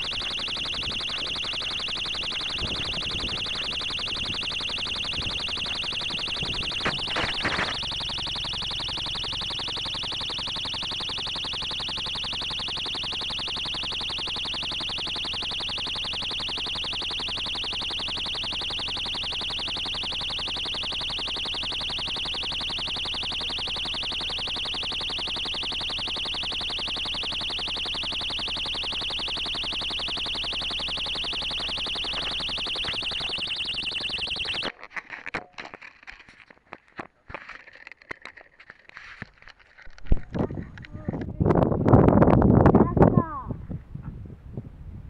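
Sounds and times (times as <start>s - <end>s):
electronic beacon high-pitched buzz: 0.0s - 34.8s.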